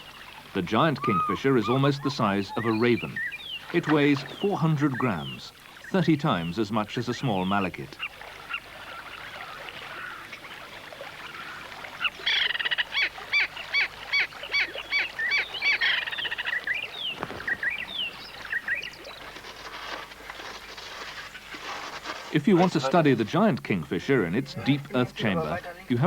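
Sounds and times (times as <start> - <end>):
down-slurred bird notes: 0.0 - 7.9
kingfisher harsh repeated calls: 0.5 - 6.0.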